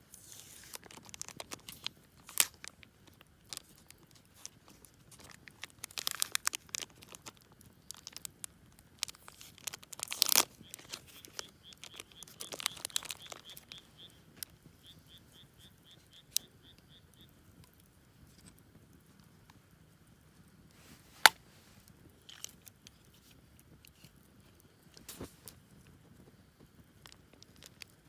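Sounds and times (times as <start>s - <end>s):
crinkling and rustling handling noise: 0.0s - 14.8s, 20.3s - 28.0s
faint high chirp: 10.6s - 17.4s.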